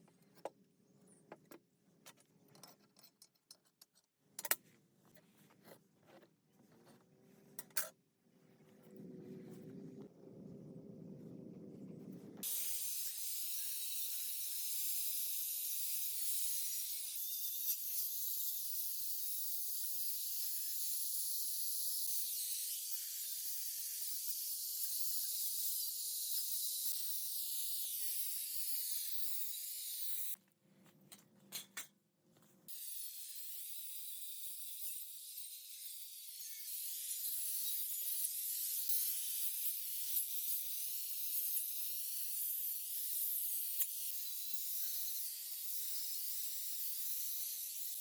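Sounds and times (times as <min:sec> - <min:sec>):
low hum: 0:08.3 - 0:12.4.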